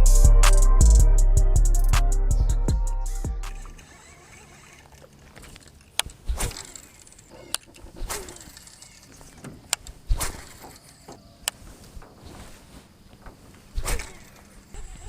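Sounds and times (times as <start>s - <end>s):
background music with drums: 0.0s - 3.6s.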